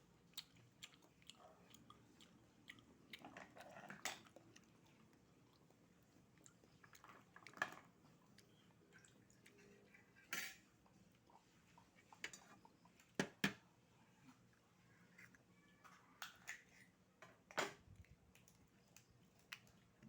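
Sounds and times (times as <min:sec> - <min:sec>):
chewing and slurping oyster: 0:00.3 - 0:07.6.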